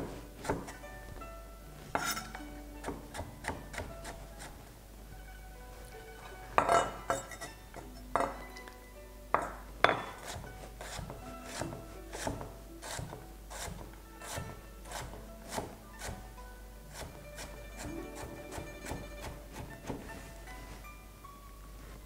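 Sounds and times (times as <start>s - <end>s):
knife chopping on cutting board: 0.0s - 0.8s, 2.0s - 4.6s, 9.9s - 16.2s, 16.9s - 20.1s
background music: 0.0s - 22.0s.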